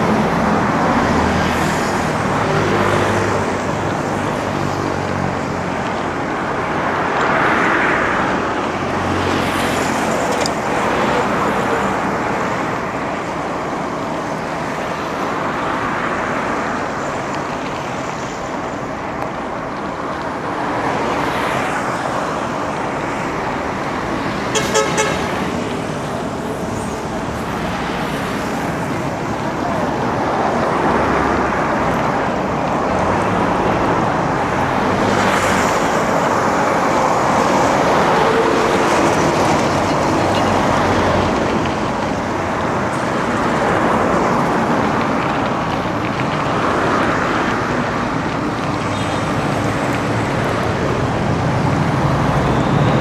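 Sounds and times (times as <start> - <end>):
road traffic roar: 0.0 - 53.0
vehicle horn beeps: 24.5 - 25.3.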